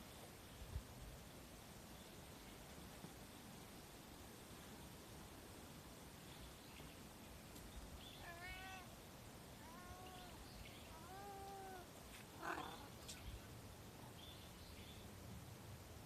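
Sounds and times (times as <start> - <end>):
noisy rustle: 0.0 - 16.0
cat meowing: 8.2 - 8.9, 9.6 - 10.4, 11.0 - 12.9.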